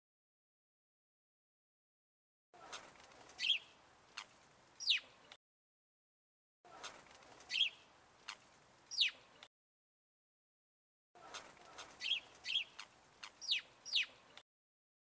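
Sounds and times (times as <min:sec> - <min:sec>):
bird calls: 0:02.6 - 0:05.4, 0:06.7 - 0:09.5, 0:11.2 - 0:14.4.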